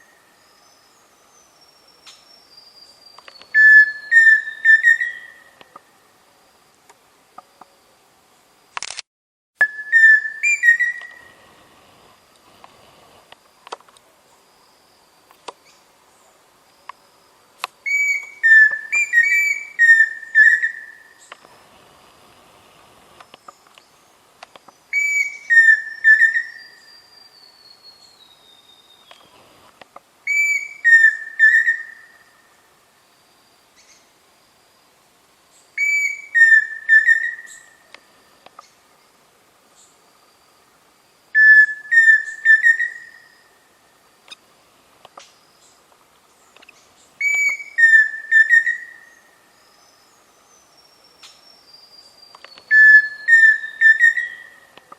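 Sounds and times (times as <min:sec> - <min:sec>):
cuckoo whistled song: 0:01.6 - 0:05.6, 0:09.6 - 0:11.3, 0:17.8 - 0:21.3, 0:24.9 - 0:29.4, 0:30.3 - 0:32.4, 0:35.8 - 0:37.9, 0:41.4 - 0:43.5, 0:47.2 - 0:50.0, 0:50.8 - 0:54.8.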